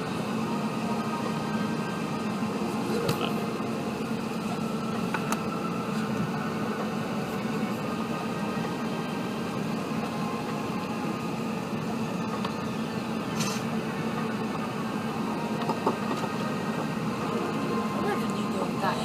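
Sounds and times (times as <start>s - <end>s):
airplane cabin hum: 0.0s - 19.0s
brief hiss: 13.3s - 13.7s.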